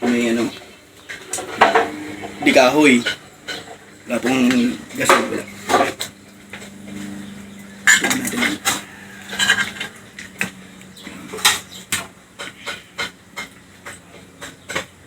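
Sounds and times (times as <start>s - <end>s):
faint steady hum: 0.0s - 15.0s
cutlery clinking on plates: 3.0s - 6.1s, 7.8s - 15.0s.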